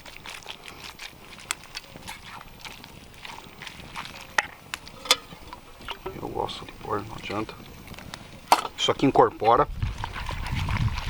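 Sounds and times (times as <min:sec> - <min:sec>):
sharp clicks: 0:01.4 - 0:02.1, 0:03.1 - 0:03.7, 0:04.7 - 0:07.2, 0:08.1 - 0:09.0.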